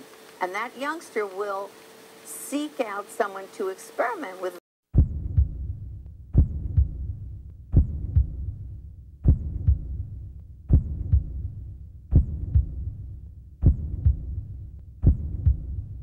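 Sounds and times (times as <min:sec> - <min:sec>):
heartbeat thumps: 0:04.9 - 0:16.0.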